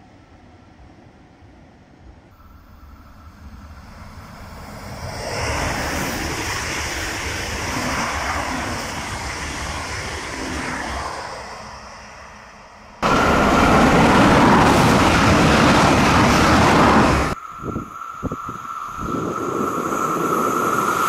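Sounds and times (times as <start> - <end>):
train wheels rumbling on rails: 2.7 - 21.0.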